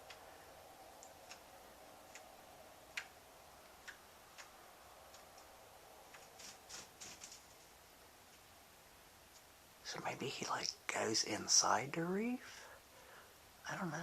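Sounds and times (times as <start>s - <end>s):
soft clicks: 0.0s - 0.3s, 0.9s - 1.5s, 2.1s - 2.3s, 2.9s - 3.2s, 3.8s - 5.5s, 6.1s - 7.4s
rustling: 0.0s - 8.6s
faint steady hum: 0.0s - 14.0s.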